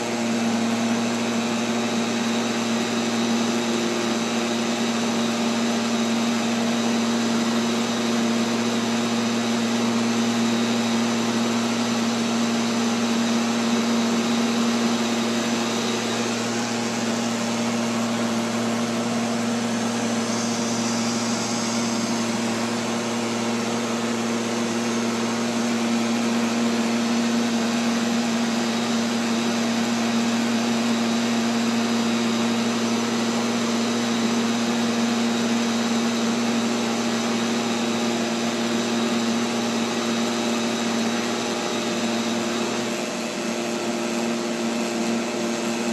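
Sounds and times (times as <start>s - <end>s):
robotic vacuum cleaner running: 0.0s - 45.9s.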